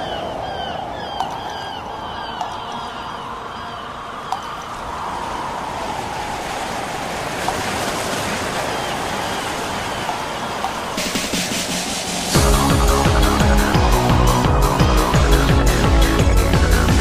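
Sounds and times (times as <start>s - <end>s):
wind-like rushing noise: 3.2s - 13.8s.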